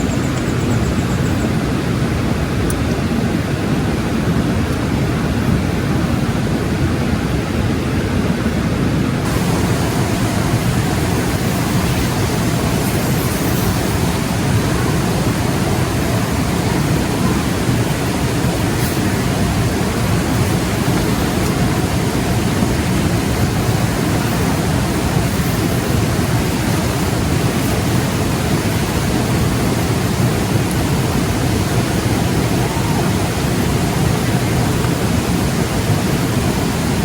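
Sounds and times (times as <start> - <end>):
loud rushing noise: 9.2 - 37.0.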